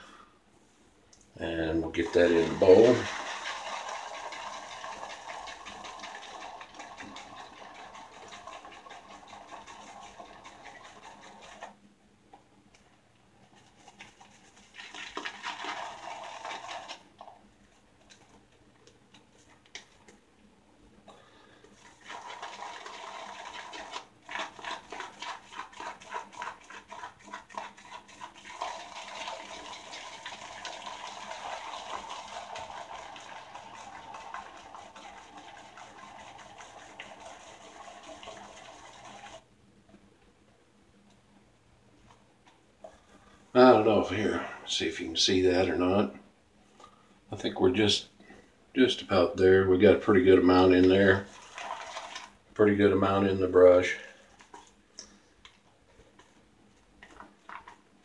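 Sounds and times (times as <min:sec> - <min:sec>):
shaving brush swishing lather: 0:01.8 - 0:11.8, 0:13.4 - 0:17.0, 0:21.8 - 0:39.4, 0:50.9 - 0:52.3.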